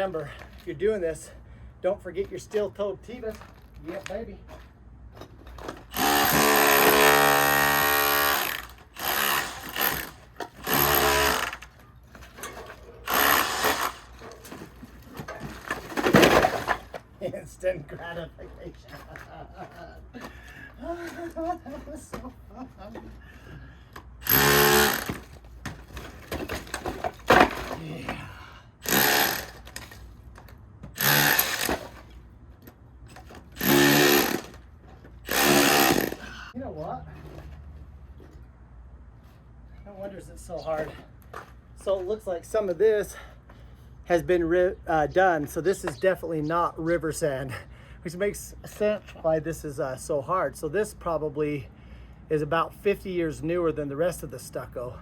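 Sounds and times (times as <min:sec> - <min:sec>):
power tool chipping stucco: 0:05.7 - 0:14.7, 0:24.2 - 0:25.4, 0:28.8 - 0:29.9, 0:31.0 - 0:32.0, 0:33.6 - 0:34.6, 0:35.3 - 0:36.3.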